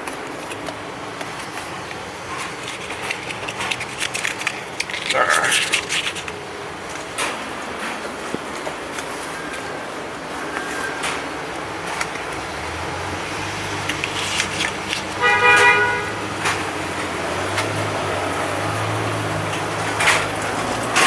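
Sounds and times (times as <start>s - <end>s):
traffic rumble: 0.0s - 21.0s
car horn honking: 15.1s - 16.5s.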